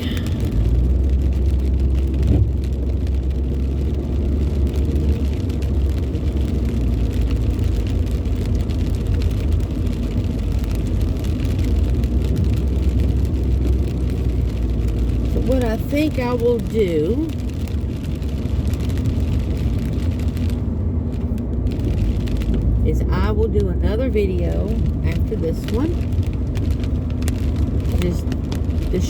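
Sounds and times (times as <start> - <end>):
car engine and tyre rumble: 0.0 - 29.0.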